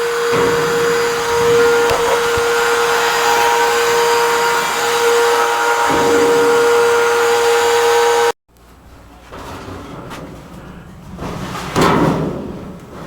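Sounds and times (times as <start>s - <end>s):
vacuum cleaner whining: 0.0s - 8.4s.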